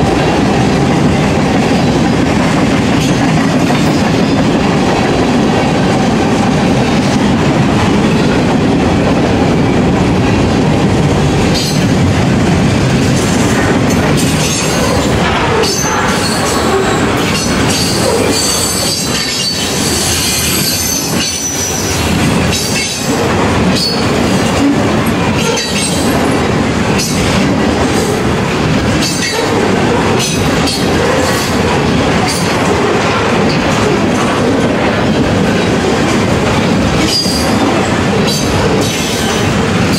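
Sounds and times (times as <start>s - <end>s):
freight train wheels rumbling: 0.0s - 39.9s
high wheel squeal: 14.6s - 22.0s.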